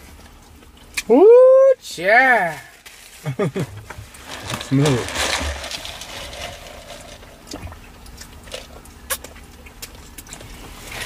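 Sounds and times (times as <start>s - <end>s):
chewing and mouth sounds: 0.0s - 1.1s, 5.4s - 11.0s.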